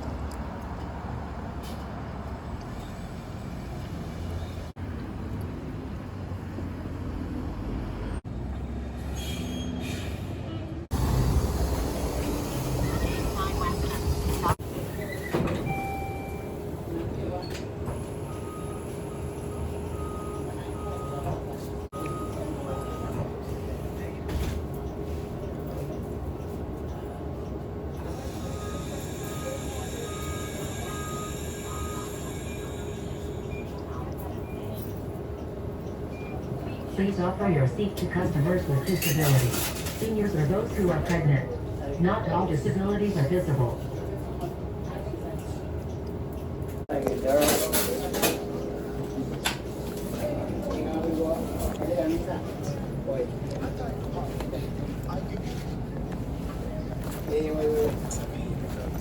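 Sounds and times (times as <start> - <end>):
subway train rumbling: 0.0 - 59.0
faint train squeals: 9.1 - 10.7, 14.7 - 16.6, 27.9 - 35.0
short beeps: 15.7 - 16.6, 21.9 - 23.2, 28.3 - 33.8.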